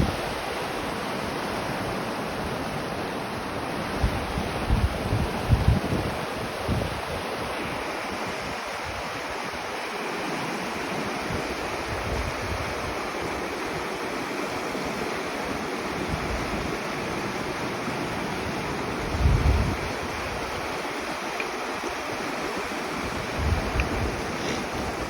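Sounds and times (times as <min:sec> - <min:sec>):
wind buffeting microphone: 0:00.0 - 0:00.5, 0:04.0 - 0:09.7, 0:11.2 - 0:13.9, 0:14.8 - 0:25.0
river rushing over rocks: 0:00.0 - 0:25.0.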